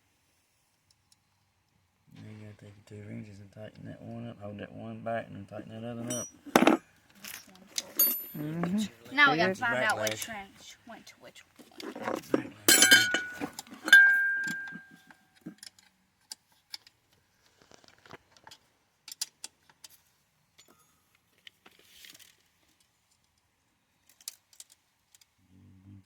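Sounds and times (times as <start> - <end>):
tools tapping metal: 6.0 - 8.7, 12.3 - 15.8
metal wrenches clinking: 6.0 - 8.8, 11.8 - 15.8
loud ringing clank: 12.7 - 15.0.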